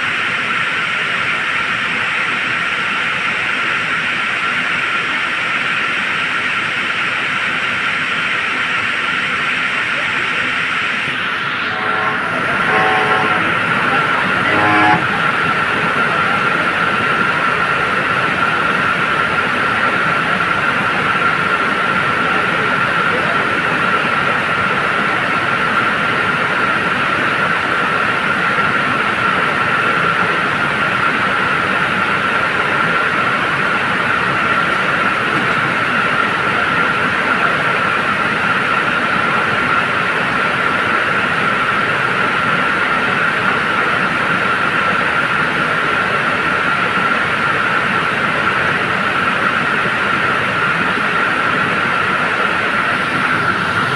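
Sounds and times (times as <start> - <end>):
high whine: 11.0 - 15.8.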